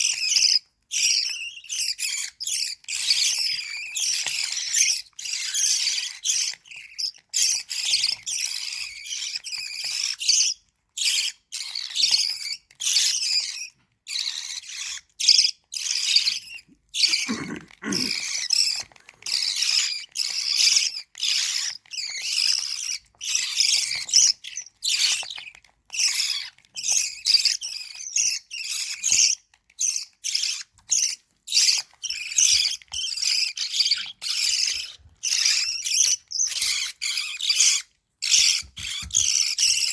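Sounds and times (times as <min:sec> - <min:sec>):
bird chicks begging calls: 0:11.0 - 0:25.4, 0:26.0 - 0:39.9.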